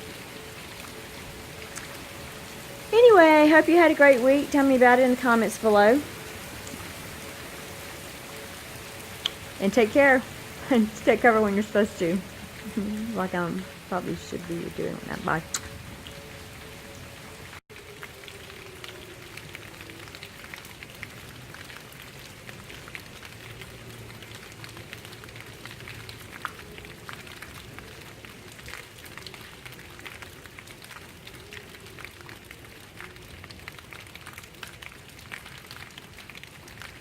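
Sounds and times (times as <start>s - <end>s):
distant warning siren wavering: 0.0s - 35.2s
rain drops pattering: 0.0s - 37.0s.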